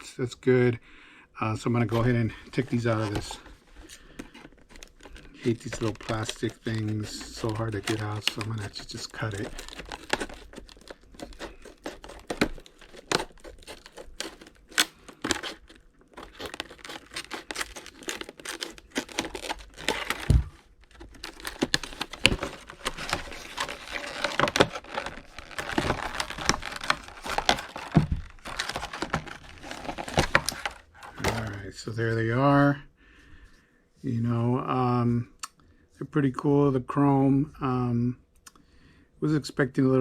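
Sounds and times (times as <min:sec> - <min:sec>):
plastic packaging tearing: 0:01.8 - 0:31.7.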